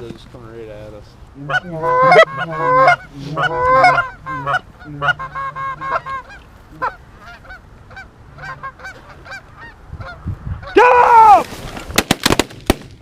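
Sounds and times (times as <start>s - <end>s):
goose calls honking: 1.4s - 10.8s.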